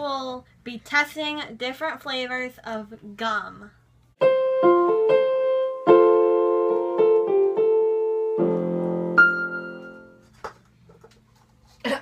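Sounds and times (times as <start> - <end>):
electric keyboard piano music: 4.2 - 10.2.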